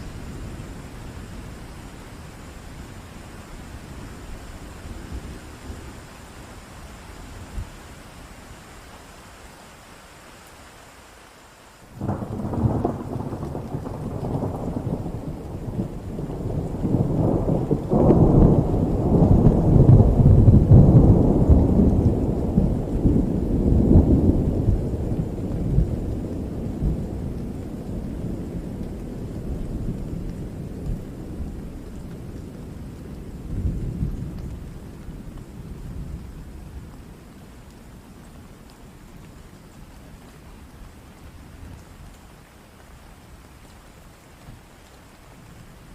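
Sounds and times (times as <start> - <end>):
steady rain: 0.0 - 45.9
thunder rolling: 12.0 - 28.8.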